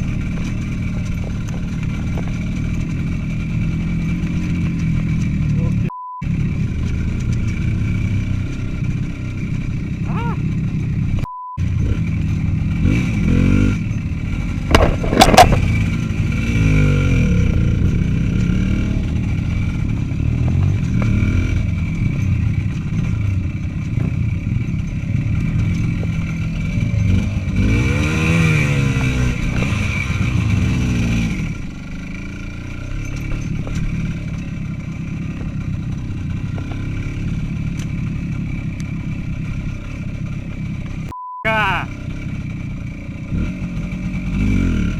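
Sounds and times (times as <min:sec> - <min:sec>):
small motorcycle engine revving: 0:00.0 - 0:41.1, 0:41.8 - 0:44.9
sharp clatter: 0:13.8 - 0:41.1.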